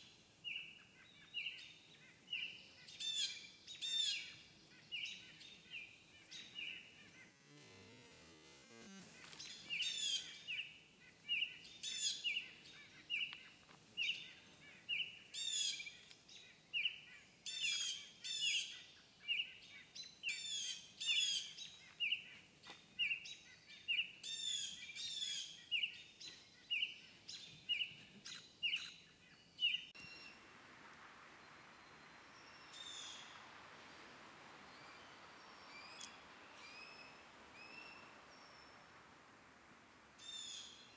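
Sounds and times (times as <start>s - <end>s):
faint hiss: 0.0s - 16.3s, 29.6s - 40.9s.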